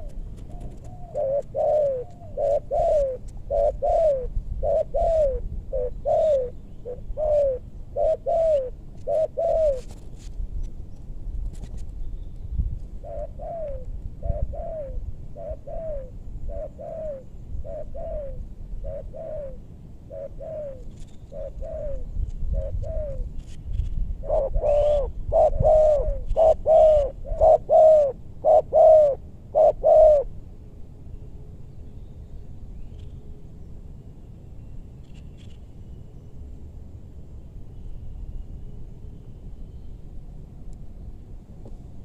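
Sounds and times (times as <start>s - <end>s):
dove cooing: 0.0s - 10.0s, 13.0s - 23.3s, 24.2s - 30.4s.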